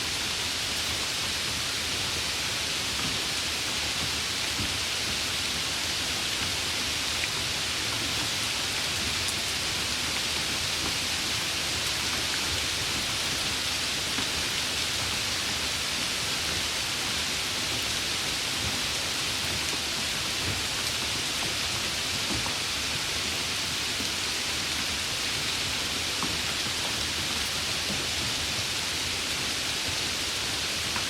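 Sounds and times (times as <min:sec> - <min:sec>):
heavy rain hissing: 0:00.0 - 0:31.0.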